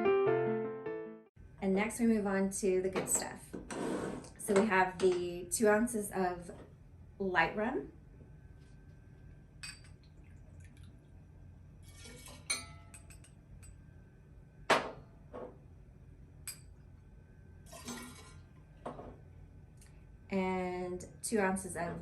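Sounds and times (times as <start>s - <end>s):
glass and metal bar tools clinking: 12.2s - 13.8s
liquid splashing: 17.7s - 18.6s.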